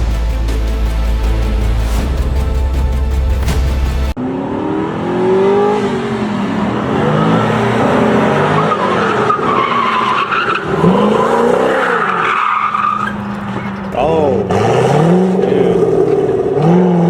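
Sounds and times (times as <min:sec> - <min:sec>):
music: 0:00.0 - 0:04.2
car engine revving: 0:00.0 - 0:17.0
tyres squealing and skidding: 0:07.0 - 0:16.4.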